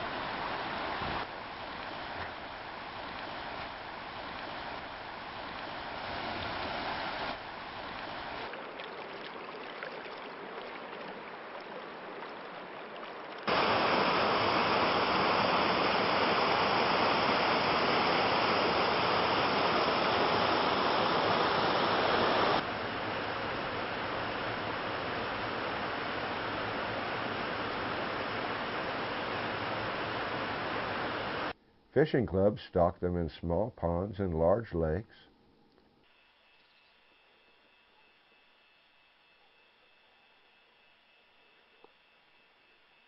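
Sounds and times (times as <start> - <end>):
rushing water: 0.0 - 31.5.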